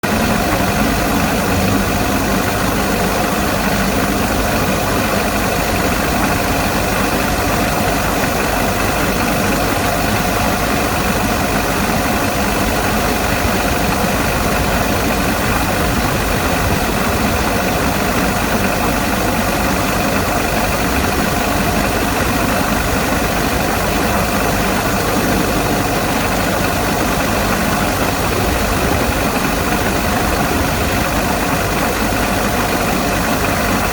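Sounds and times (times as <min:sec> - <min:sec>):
diesel engine idling: 0:08.6 - 0:33.9.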